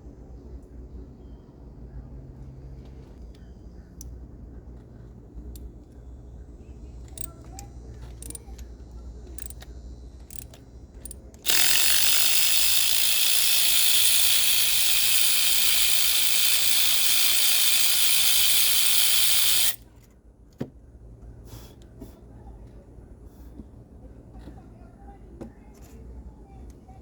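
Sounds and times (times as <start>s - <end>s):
power ratchet running: 7.2s - 7.4s, 8.2s - 8.4s, 9.4s - 9.6s, 10.2s - 19.8s
sharp clicks: 9.4s - 19.8s.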